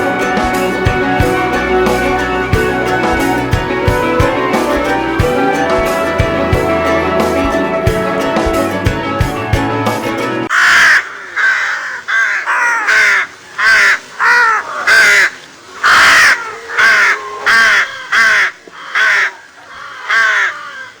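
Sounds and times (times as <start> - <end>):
crows cawing: 10.5 - 21.0.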